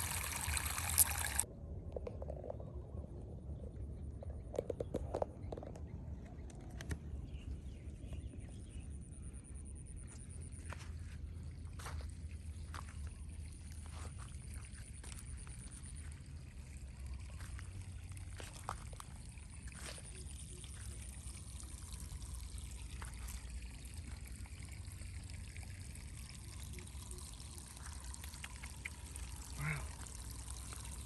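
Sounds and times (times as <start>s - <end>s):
water trickling and pouring: 0.0s - 1.5s, 11.0s - 31.0s.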